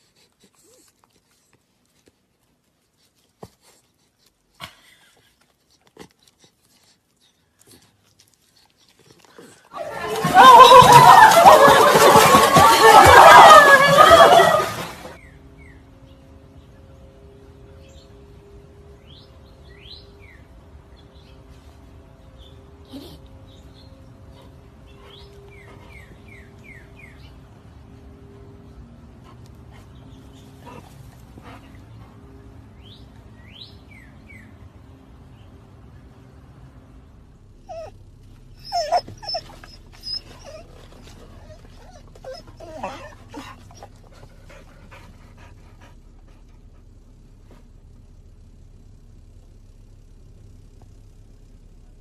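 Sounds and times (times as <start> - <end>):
dog panting: 0.0 - 14.9, 24.2 - 26.8, 29.1 - 32.7, 38.6 - 47.7
dog whining: 9.4 - 14.9, 37.6 - 45.1
birds chirping: 9.8 - 21.5, 22.2 - 27.8, 29.7 - 36.2
faint steady hum: 12.7 - 52.0.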